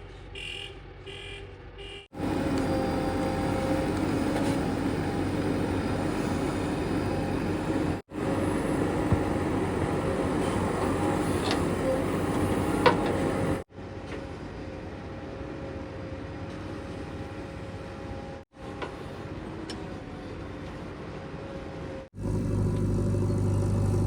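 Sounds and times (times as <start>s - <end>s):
heavy diesel engine running: 2.2s - 13.6s, 22.1s - 24.0s.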